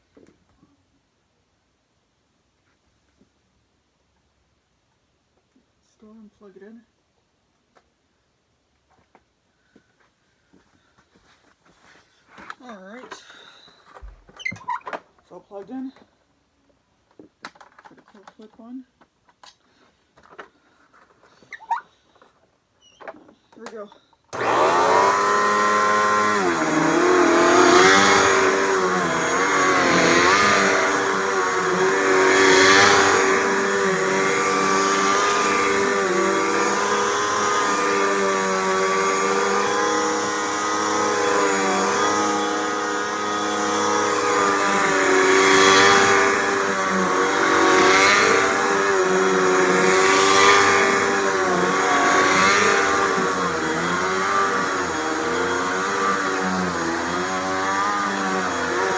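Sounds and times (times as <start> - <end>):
vacuum cleaner running: 24.3 - 58.9.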